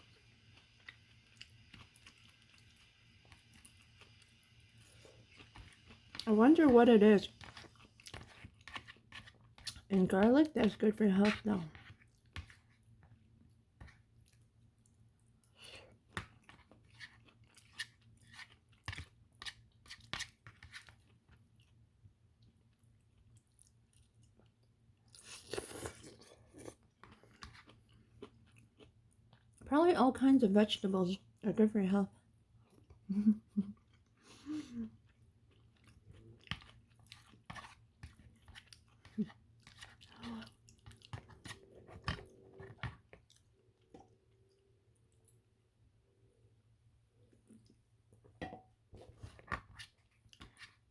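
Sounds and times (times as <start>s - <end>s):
chewing food: 0.1s - 6.4s, 7.0s - 29.6s, 34.8s - 45.4s.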